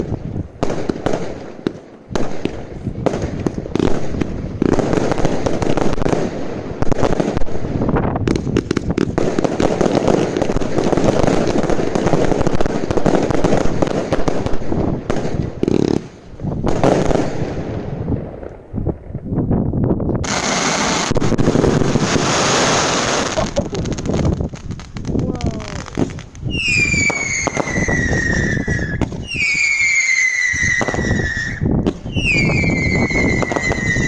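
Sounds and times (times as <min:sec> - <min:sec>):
fireworks bangs and crackling: 0:00.0 - 0:34.0
crackling hiss: 0:20.2 - 0:34.0.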